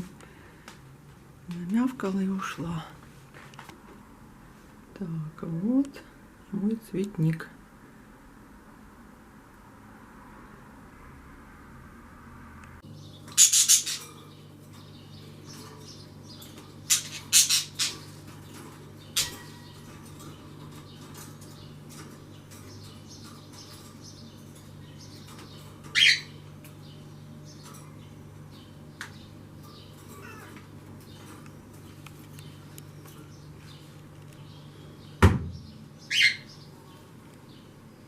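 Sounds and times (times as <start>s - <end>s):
birds chirping and squawking: 12.8s - 38.0s.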